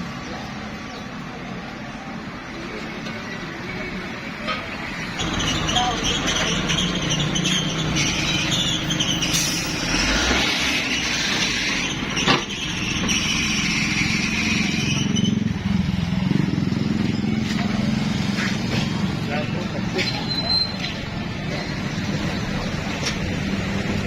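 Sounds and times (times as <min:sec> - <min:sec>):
engine running: 0:05.2 - 0:20.1.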